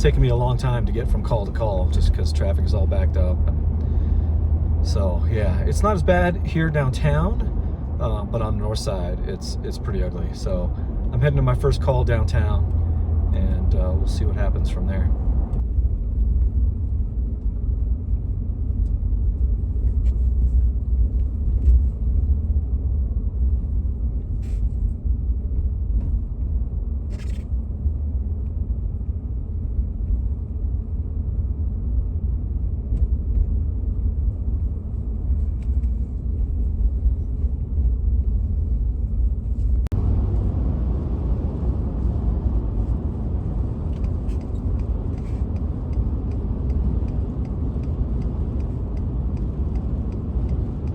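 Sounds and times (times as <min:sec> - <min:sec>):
vehicle rumble from inside cab: 0:00.0 - 0:50.9
road noise hiss: 0:38.5 - 0:50.9.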